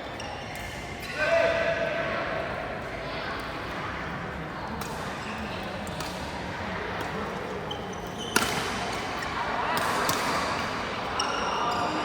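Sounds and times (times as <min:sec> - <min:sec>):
murmur of voices: 0:00.0 - 0:12.0
shoe squeaks on court: 0:07.7 - 0:08.6
rackets hitting shuttlecock: 0:08.2 - 0:10.9.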